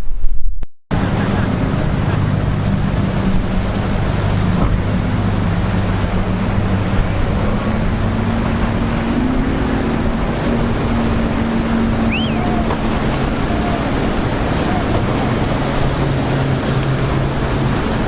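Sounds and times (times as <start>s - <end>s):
wind and surf: 0.0s - 18.0s
boat engines humming: 0.9s - 18.0s
short high chirp: 12.1s - 12.5s.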